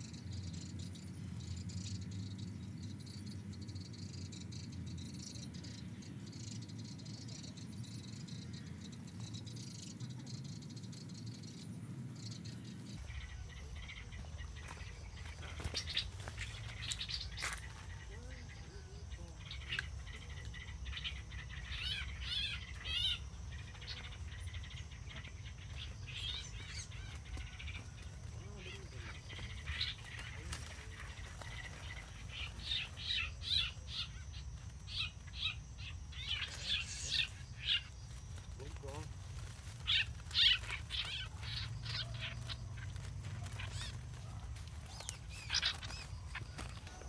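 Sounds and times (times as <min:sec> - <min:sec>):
songbirds chirping: 0:00.0 - 0:47.0
bird distress calls: 0:12.9 - 0:47.0.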